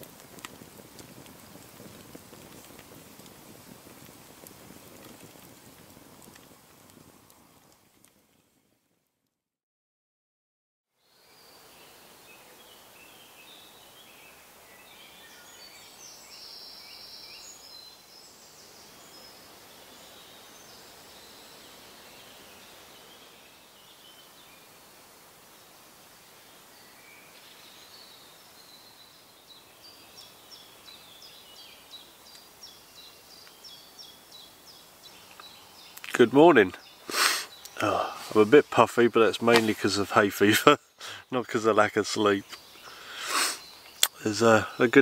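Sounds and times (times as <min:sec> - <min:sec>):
faint steady hiss: 0:00.0 - 0:09.2, 0:10.9 - 0:45.0
birds calling and singing: 0:26.7 - 0:45.0.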